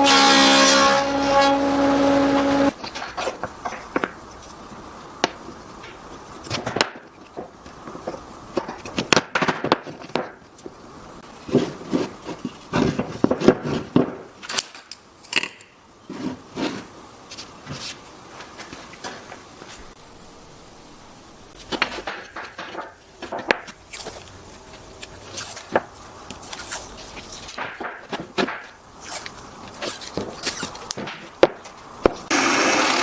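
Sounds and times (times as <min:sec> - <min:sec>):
wooden pieces knocking: 0:27.6 - 0:28.8.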